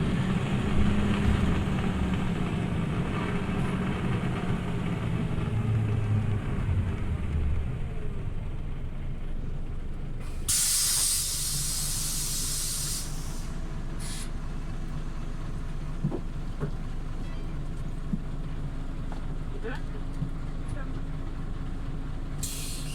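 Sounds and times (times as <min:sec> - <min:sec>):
bus engine running: 0:00.0 - 0:22.9
compressed air hissing: 0:10.2 - 0:14.4, 0:22.4 - 0:22.9.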